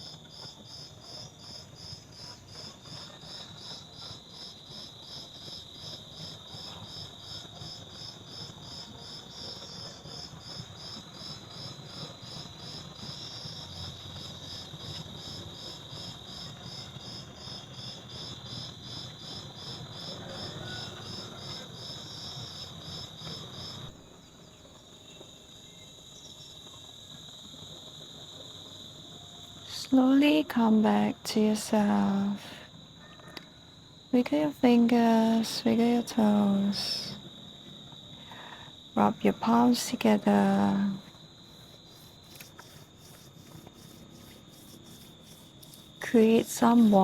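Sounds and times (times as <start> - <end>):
insect high trill: 38.2 - 47.0.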